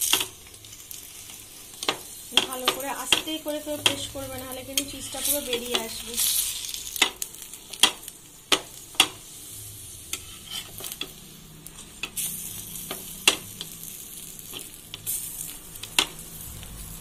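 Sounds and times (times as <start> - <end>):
flatbread sizzling in oil: 0.0 - 17.0
spatula tapping and scraping pan: 1.8 - 6.0, 6.9 - 9.2.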